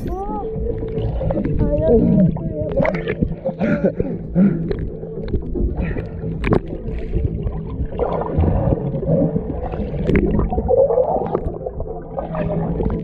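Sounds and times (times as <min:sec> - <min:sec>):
boat engine running: 0:00.0 - 0:03.5
water gurgling: 0:00.0 - 0:13.0.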